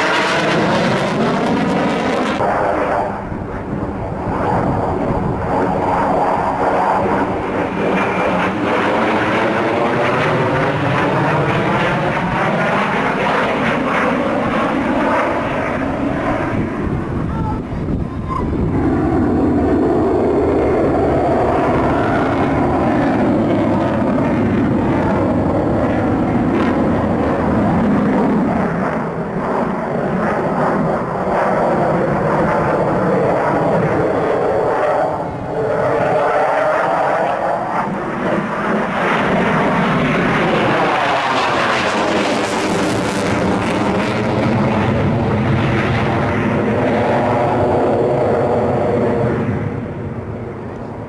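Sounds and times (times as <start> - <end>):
jet engine whine: 0.0 - 51.0
jet fighter engines roaring: 0.0 - 51.0.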